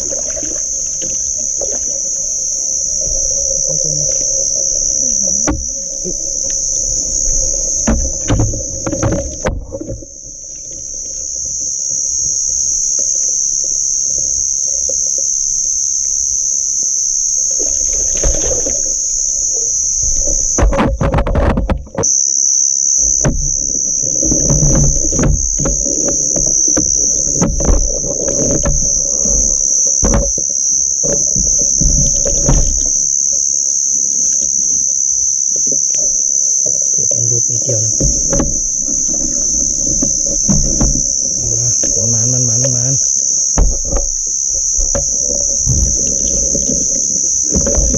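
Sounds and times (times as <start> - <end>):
insects droning: 0.0 - 47.9
low thumps: 17.4 - 22.2, 23.0 - 33.2, 35.8 - 47.9.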